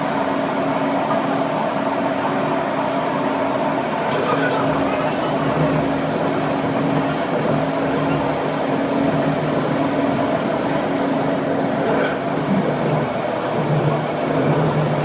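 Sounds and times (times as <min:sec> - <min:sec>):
machine running with low hum: 0:00.0 - 0:15.0.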